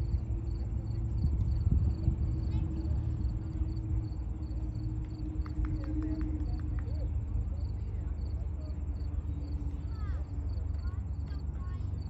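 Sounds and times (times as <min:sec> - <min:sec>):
insects chirping: 0:00.0 - 0:05.7
loud low rumble: 0:00.0 - 0:12.0
steady hum: 0:00.0 - 0:12.0.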